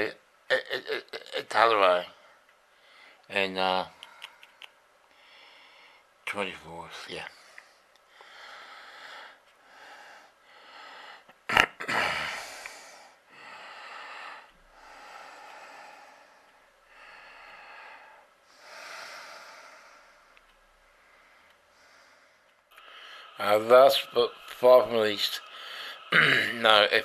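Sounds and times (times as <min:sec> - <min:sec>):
person breathing: 0:02.2 - 0:03.3, 0:03.9 - 0:06.2, 0:07.3 - 0:11.3, 0:12.0 - 0:27.0.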